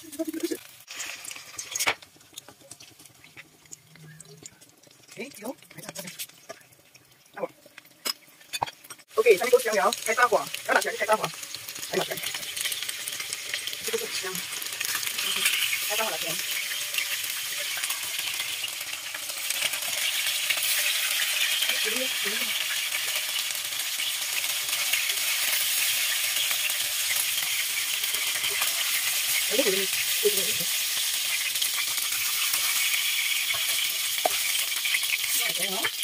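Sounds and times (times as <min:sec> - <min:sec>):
chicken sizzling in hot oil: 0:00.0 - 0:36.0
spatula scraping wok: 0:08.0 - 0:36.0.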